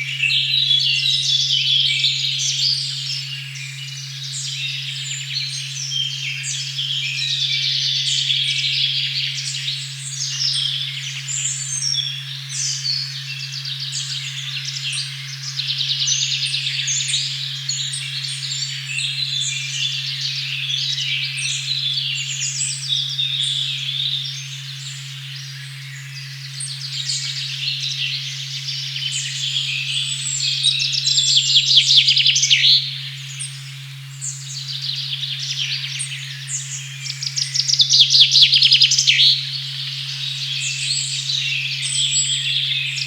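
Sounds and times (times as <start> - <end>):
songbirds chirping and trilling: 0.0 - 43.0
steady sine tone: 0.0 - 43.0.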